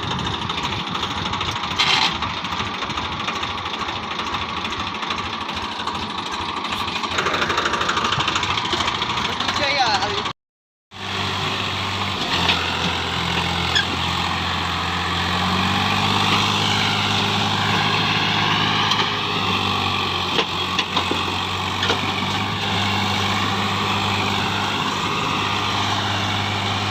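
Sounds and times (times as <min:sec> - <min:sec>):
tractor diesel engine running: 0:00.0 - 0:10.4, 0:11.0 - 0:26.9.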